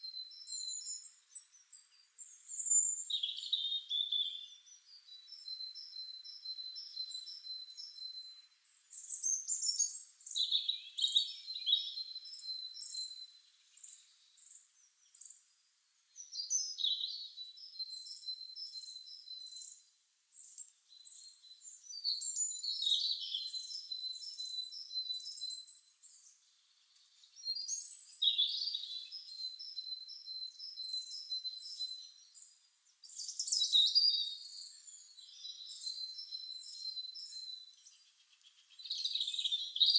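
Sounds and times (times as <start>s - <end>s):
songbirds chirping and singing: 0.1s - 39.9s.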